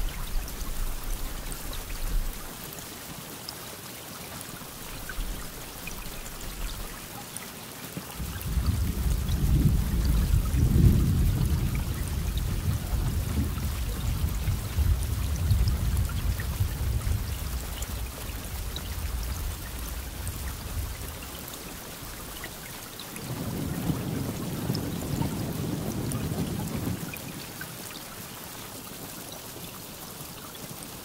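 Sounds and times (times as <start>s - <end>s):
rain pattering: 0.0s - 31.0s
rolling thunder: 8.2s - 21.2s, 23.2s - 27.4s.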